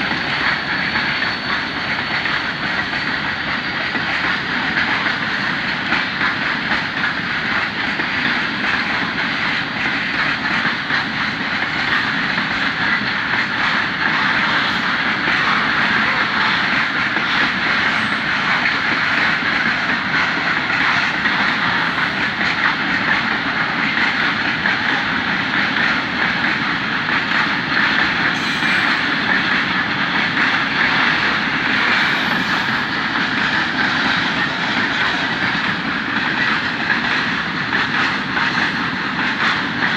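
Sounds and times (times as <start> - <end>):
freight train wheels clattering on rails: 0.0 - 39.9.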